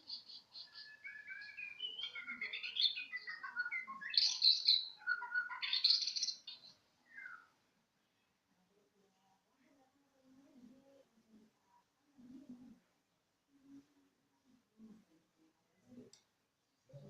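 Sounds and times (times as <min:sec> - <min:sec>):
songbird singing: 0:00.0 - 0:07.6.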